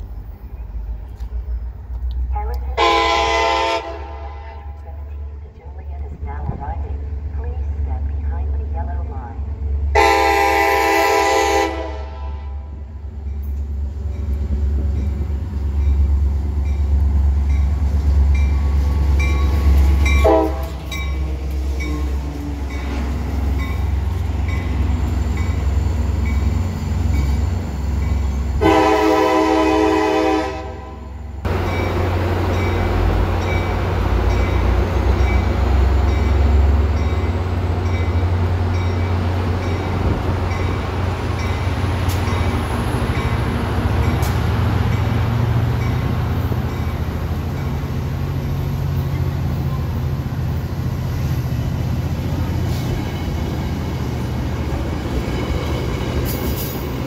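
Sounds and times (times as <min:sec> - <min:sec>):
locomotive engine rumble: 0:00.0 - 0:57.0
train horn blast: 0:02.4 - 0:05.0, 0:09.9 - 0:12.8, 0:20.1 - 0:21.0, 0:28.6 - 0:31.2.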